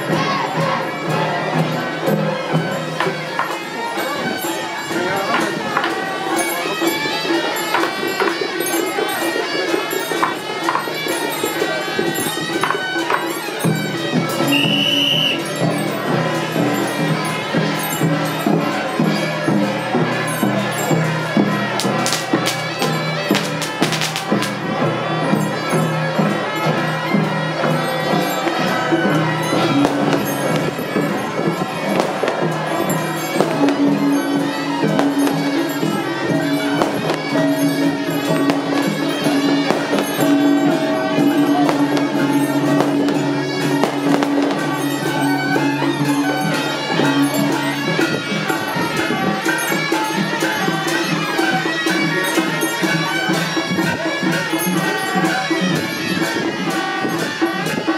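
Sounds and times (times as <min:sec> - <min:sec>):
clashing percussion: 0:00.0 - 0:57.9
shrill reed horns: 0:02.8 - 0:57.9
sharp cracks: 0:23.6 - 0:24.2.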